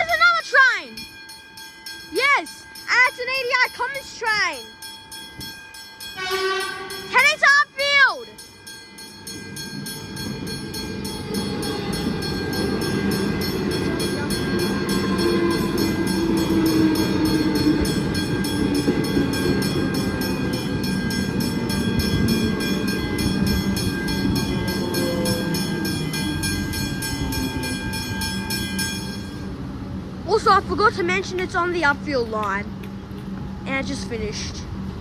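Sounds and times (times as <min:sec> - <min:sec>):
level-crossing bell ringing: 0:00.0 - 0:29.6
train wheels rumbling: 0:00.0 - 0:35.0
train motors whining: 0:08.4 - 0:35.0.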